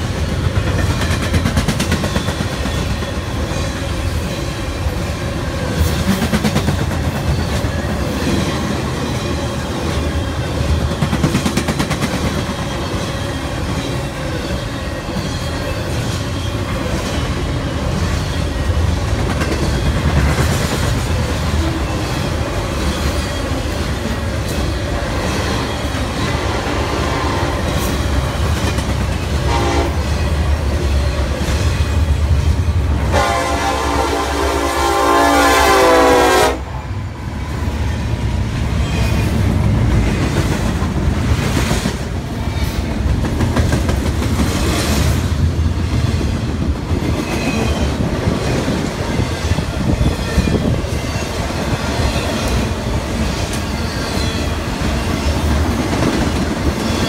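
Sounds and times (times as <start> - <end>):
freight train rumble: 0.0 - 57.0
locomotive horn: 26.2 - 27.9, 29.4 - 30.2, 33.0 - 36.8.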